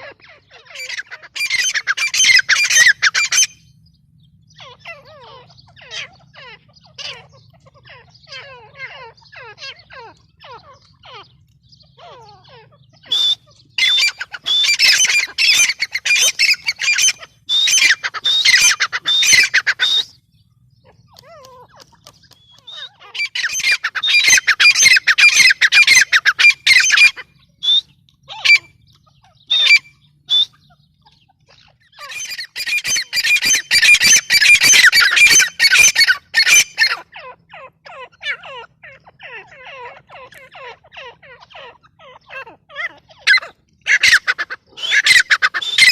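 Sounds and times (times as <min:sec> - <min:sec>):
francolin calling harsh notes: 0:13.0 - 0:20.2.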